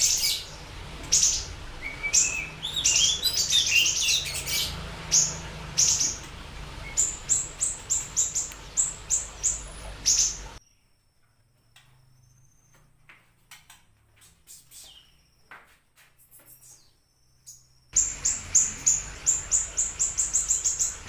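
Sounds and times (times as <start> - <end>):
bird singing sharp high chirps: 0.0 - 6.2, 16.3 - 21.0.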